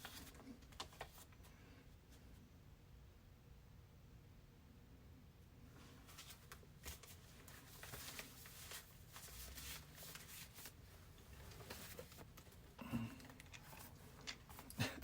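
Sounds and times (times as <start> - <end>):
faint clicks and rustles: 5.8 - 15.0.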